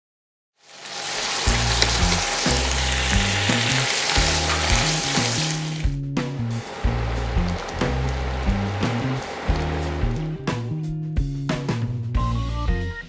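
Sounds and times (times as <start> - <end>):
food sizzling in a pan: 0.6 - 10.3
background music with bass line: 1.5 - 13.0.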